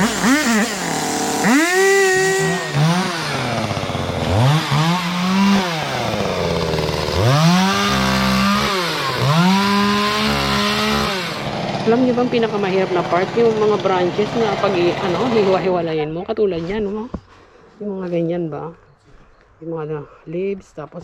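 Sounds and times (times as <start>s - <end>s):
chainsaw revving and idling: 0.0s - 16.2s.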